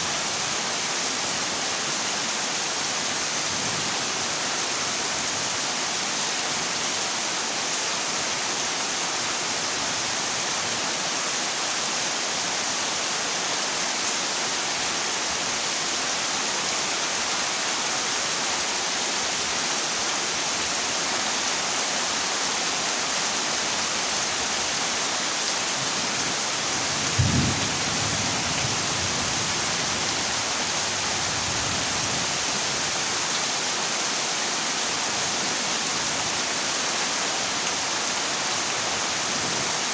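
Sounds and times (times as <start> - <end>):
heavy rain on metal roof: 0.0 - 39.9
low thunder rumble: 27.0 - 29.6.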